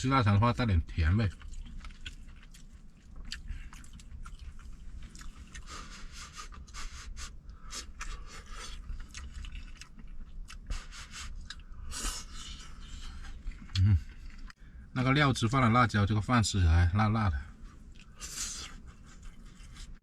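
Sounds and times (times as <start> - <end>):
person chewing food: 1.3 - 14.6, 17.6 - 20.0.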